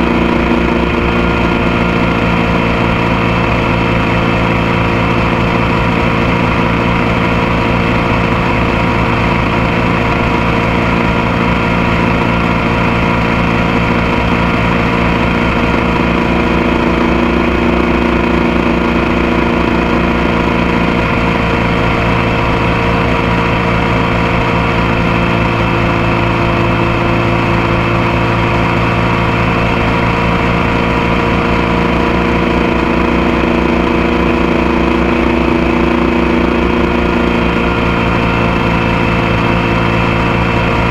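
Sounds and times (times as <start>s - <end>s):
motorcycle engine running steadily: 0.0s - 40.9s.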